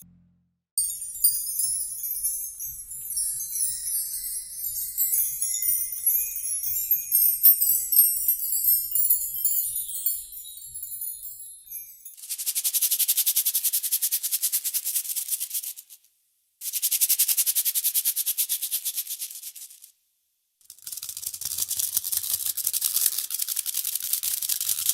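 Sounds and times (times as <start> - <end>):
small metal bells jingling: 0.8 - 12.3.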